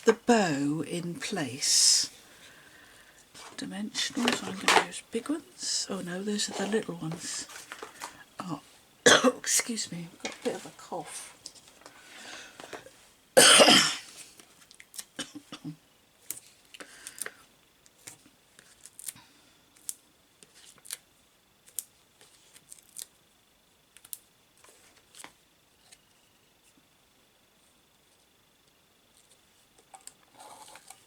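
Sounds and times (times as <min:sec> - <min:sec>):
paper clicks and rustles: 0:03.4 - 0:05.4, 0:06.3 - 0:08.2, 0:29.1 - 0:31.0
person coughing: 0:09.1 - 0:09.4, 0:13.4 - 0:14.1.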